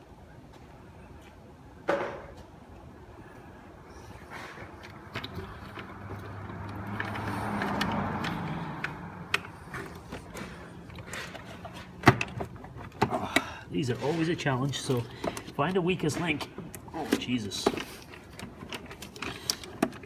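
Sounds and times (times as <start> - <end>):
low mechanical hum: 0.0 - 20.0
tools and parts clicking: 4.8 - 13.5, 14.6 - 20.0.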